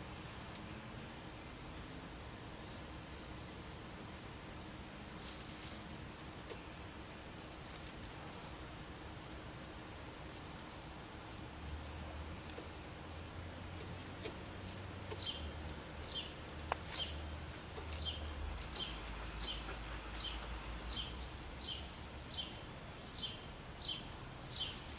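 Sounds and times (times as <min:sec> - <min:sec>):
songbird calling: 0:13.7 - 0:24.9.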